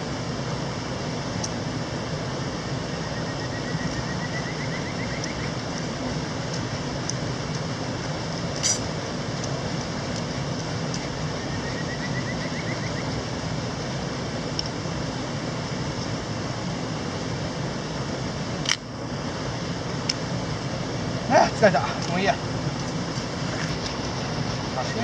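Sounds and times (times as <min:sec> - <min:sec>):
mountain stream rushing: 0:00.0 - 0:25.0
sharp click: 0:08.6 - 0:08.9.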